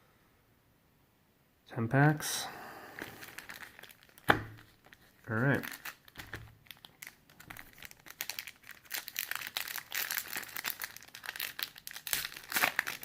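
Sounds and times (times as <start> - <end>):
plastic wrapper crinkling: 2.9 - 13.0.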